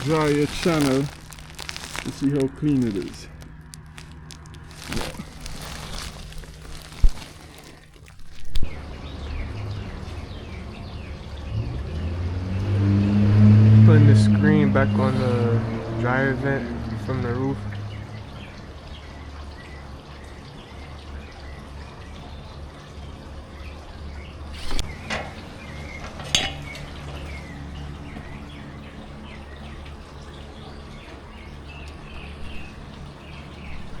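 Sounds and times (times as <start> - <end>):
metal clinking: 26.2 - 26.9.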